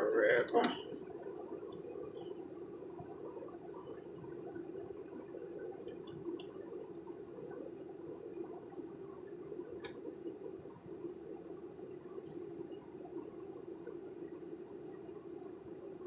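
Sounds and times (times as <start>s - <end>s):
faint clicks: 5.8s - 6.6s, 9.8s - 10.1s.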